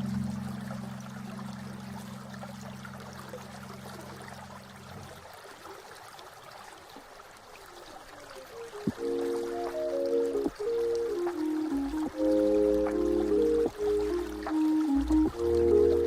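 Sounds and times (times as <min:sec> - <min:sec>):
held low music chord: 0:00.0 - 0:03.7, 0:08.9 - 0:16.0
stream trickling over stones: 0:00.0 - 0:16.0.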